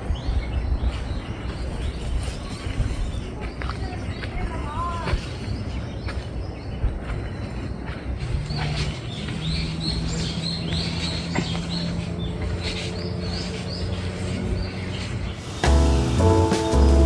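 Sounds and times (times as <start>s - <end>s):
outdoor background noise: 0.0s - 17.0s
bird chirping: 8.5s - 17.0s.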